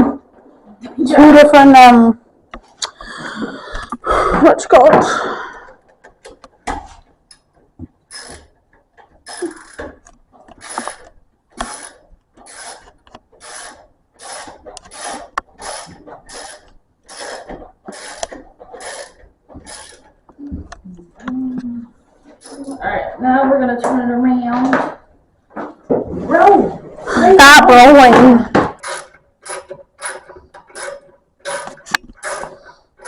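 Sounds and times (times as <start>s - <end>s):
ratchet wrench ratcheting: 8.1s - 8.5s, 9.2s - 20.1s, 28.8s - 33.0s.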